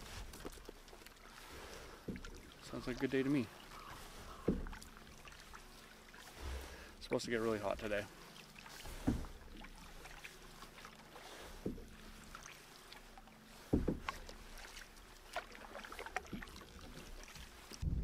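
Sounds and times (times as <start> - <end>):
paddle splashing water: 0.0 - 18.0.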